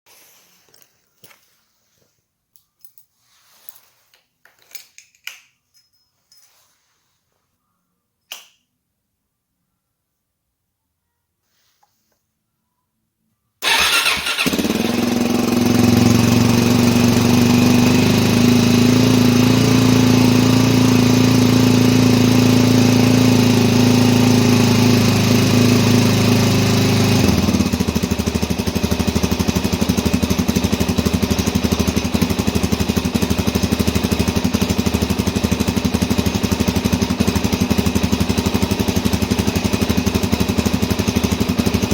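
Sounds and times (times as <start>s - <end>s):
motorcycle engine idling: 13.6s - 41.9s.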